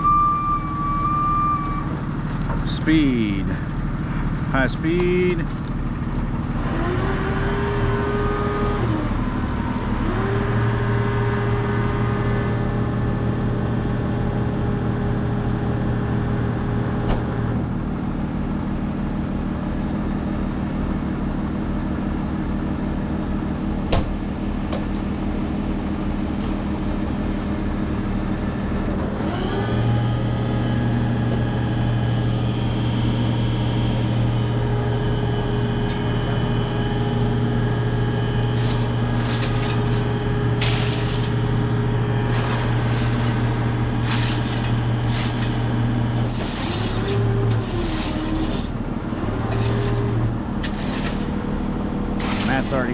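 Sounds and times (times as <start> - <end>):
diesel truck engine revving: 1.8 - 18.2, 27.2 - 52.9.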